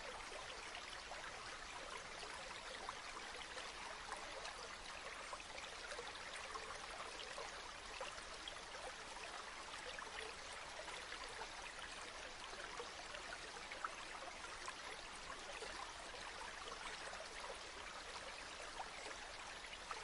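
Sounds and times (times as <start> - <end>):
river water babbling: 0.0 - 20.0.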